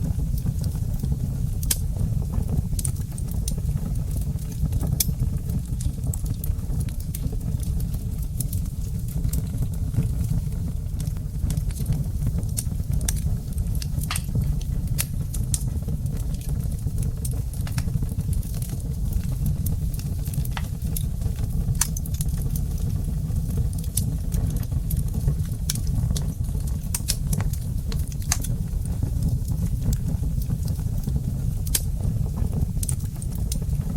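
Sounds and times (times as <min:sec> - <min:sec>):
fire crackling and popping: 0:00.0 - 0:33.9
flames rumbling: 0:00.0 - 0:33.9.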